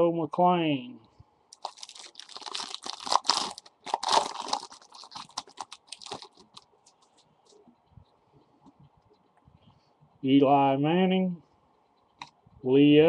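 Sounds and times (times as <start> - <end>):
wrapper crinkling: 1.5 - 7.6
cards being handled: 1.6 - 7.6.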